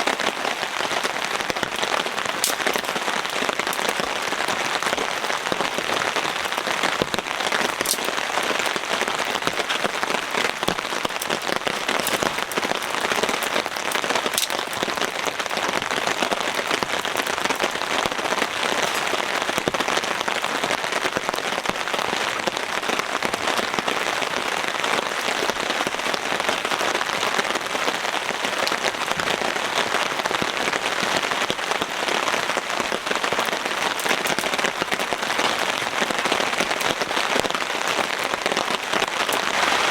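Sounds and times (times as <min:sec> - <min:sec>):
heavy rain falling: 0:00.0 - 0:39.9
raindrops ticking: 0:00.0 - 0:39.9.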